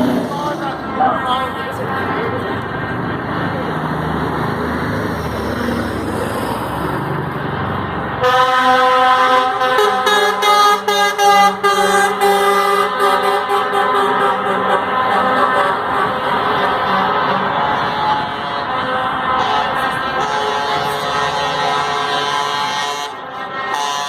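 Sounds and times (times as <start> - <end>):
truck engines running: 0.0 - 24.0
truck air horns: 8.2 - 24.0.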